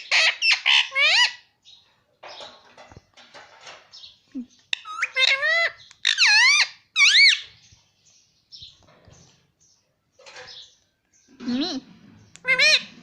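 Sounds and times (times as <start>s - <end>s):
parrot high-pitched calls: 0.0s - 1.5s, 4.7s - 7.5s, 12.4s - 13.0s.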